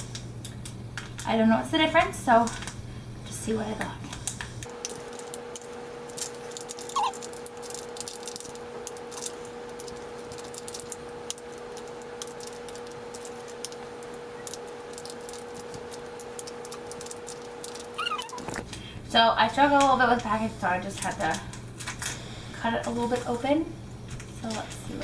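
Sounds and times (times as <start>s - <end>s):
steady room hum: 0.0s - 25.0s
plastic pouch crinkling and rattling: 4.2s - 18.7s.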